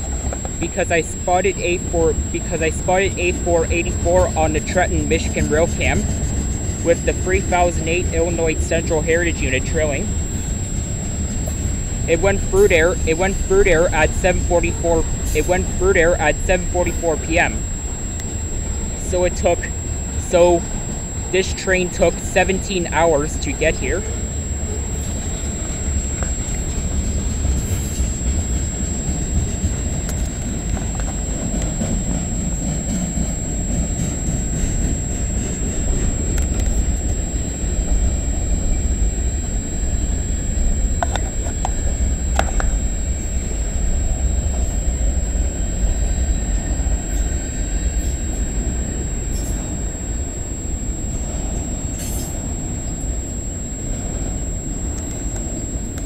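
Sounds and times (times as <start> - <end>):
train wheels rumbling on rail: 0.0 - 8.9.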